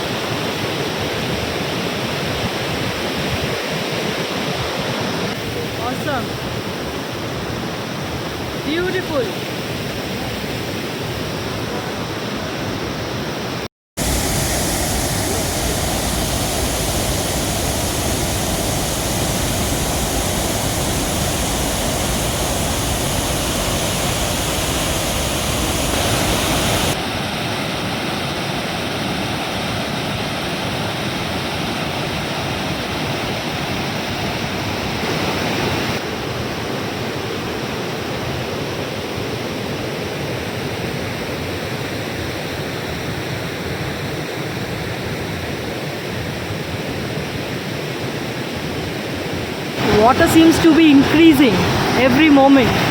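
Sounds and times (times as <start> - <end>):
waterfall crashing over rocks: 14.0 - 28.4, 49.8 - 52.9.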